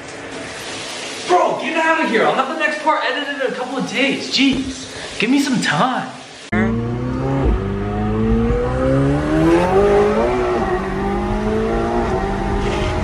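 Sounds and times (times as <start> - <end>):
sports car engine accelerating: 6.5 - 13.0.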